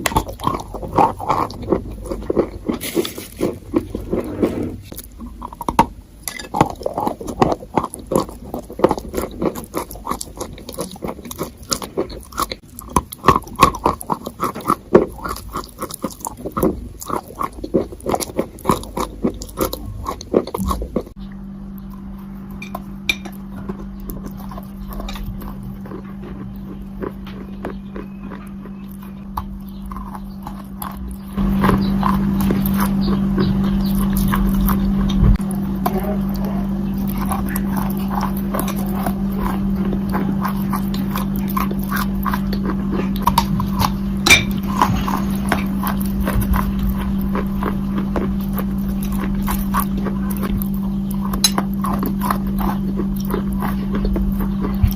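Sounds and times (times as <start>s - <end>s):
crunchy chewing: 0.0s - 54.9s
steady low hum: 0.0s - 54.9s.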